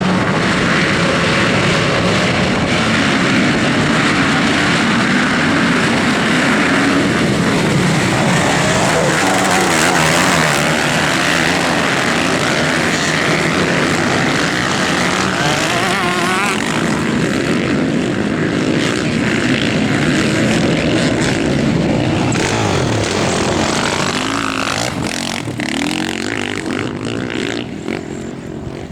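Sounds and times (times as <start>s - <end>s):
motocross bikes revving: 0.0s - 28.9s.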